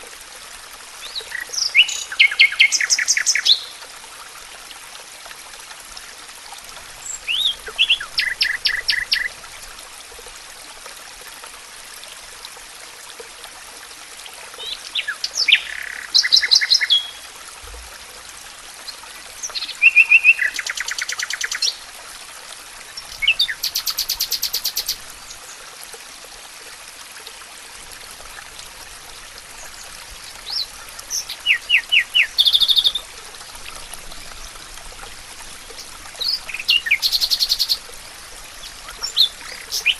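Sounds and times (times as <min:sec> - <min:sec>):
songbird trilling: 0:07.0 - 0:09.3, 0:30.5 - 0:33.0, 0:36.2 - 0:37.8, 0:38.6 - 0:39.9.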